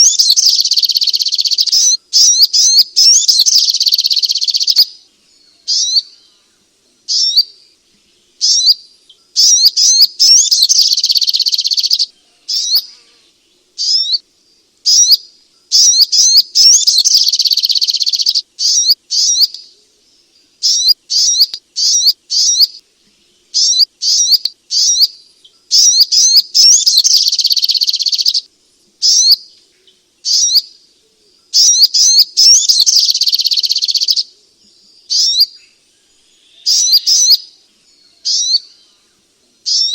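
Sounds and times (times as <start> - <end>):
bird chattering: 0.0 - 5.0, 9.4 - 12.9, 13.8 - 14.2, 14.9 - 19.6, 20.6 - 22.8, 23.6 - 29.4, 30.3 - 30.7, 31.6 - 34.3, 35.1 - 35.5, 36.6 - 37.5, 38.2 - 38.8, 39.7 - 39.9
bird high chirps: 0.0 - 6.5, 7.1 - 7.8, 8.4 - 13.1, 13.8 - 14.2, 14.8 - 22.8, 23.4 - 30.8, 31.4 - 39.9.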